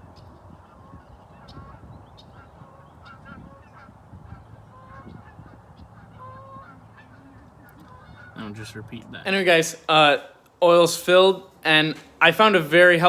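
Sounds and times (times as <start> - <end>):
geese honking: 0.6 - 10.1.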